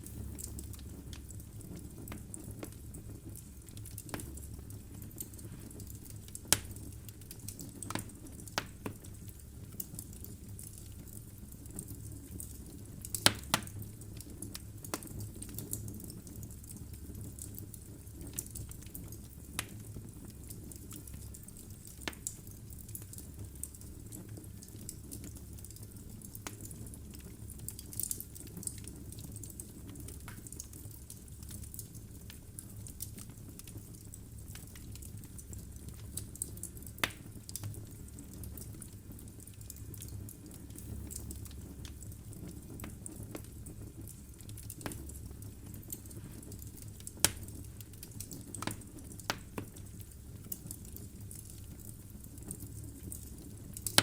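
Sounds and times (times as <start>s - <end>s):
wood logs crackling in fireplace: 0.0s - 54.0s.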